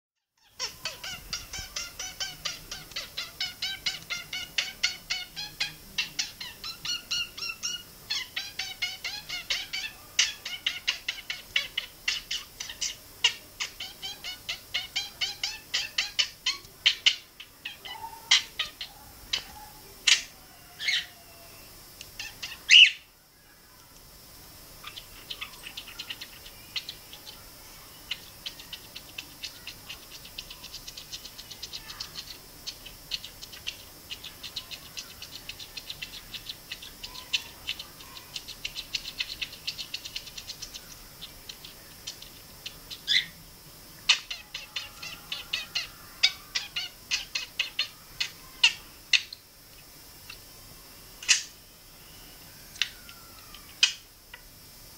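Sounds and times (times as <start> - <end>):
budgerigar chattering: 0.4 - 21.1, 22.2 - 23.0, 24.8 - 27.4, 28.0 - 43.4, 44.1 - 49.4
budgerigar whistled calls: 22.2 - 23.1, 42.9 - 43.4.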